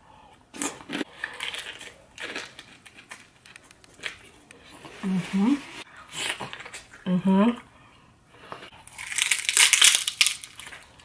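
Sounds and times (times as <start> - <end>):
chewing crunchy fried food: 0.6 - 4.5, 8.7 - 11.0.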